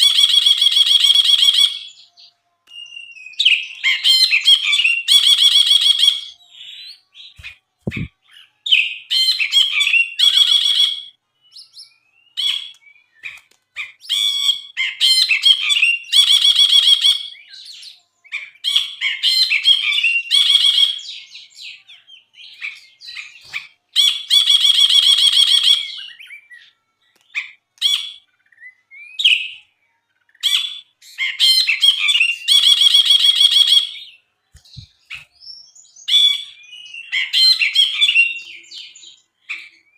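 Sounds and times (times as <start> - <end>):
bulbul singing chattering song: 0.0 - 26.7.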